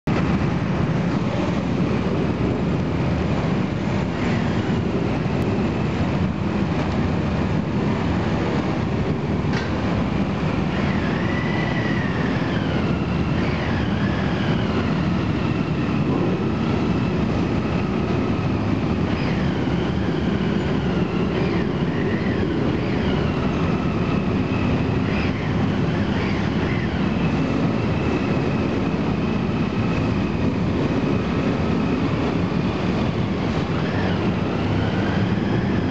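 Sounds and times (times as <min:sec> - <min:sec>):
engines rumbling: 0:00.0 - 0:35.9
high sliding squeals: 0:07.5 - 0:35.9.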